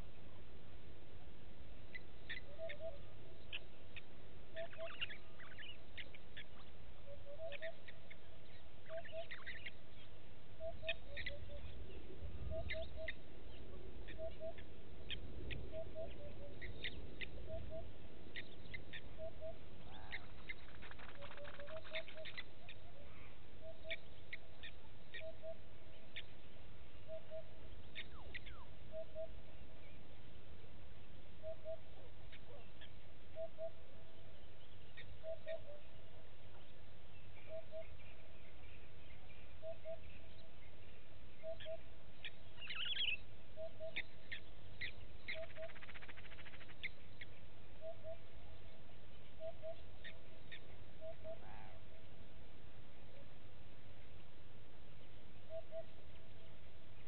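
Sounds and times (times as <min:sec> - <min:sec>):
bird low double hoot: 0:02.3 - 0:03.6, 0:07.0 - 0:08.1, 0:10.6 - 0:24.4, 0:27.0 - 0:29.8, 0:31.4 - 0:34.3, 0:35.0 - 0:36.3, 0:37.4 - 0:38.4, 0:39.6 - 0:40.5, 0:42.6 - 0:46.1, 0:47.8 - 0:53.5, 0:55.4 - 0:56.6.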